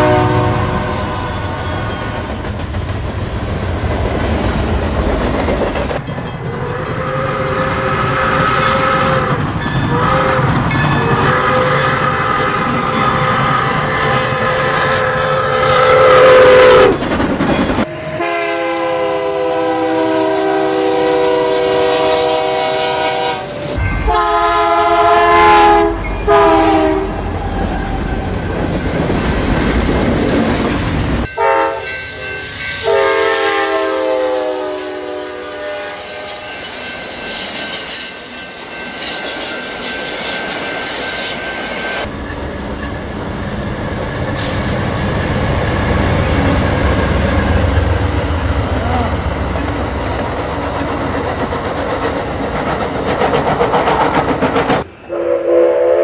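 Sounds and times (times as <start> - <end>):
locomotive air horn: 0.0 - 1.9, 7.0 - 17.0, 17.8 - 27.3, 31.3 - 37.0, 55.1 - 56.0
train rumble and wheel clatter: 0.0 - 55.8
high wheel squeal: 0.9 - 2.4, 34.4 - 43.2.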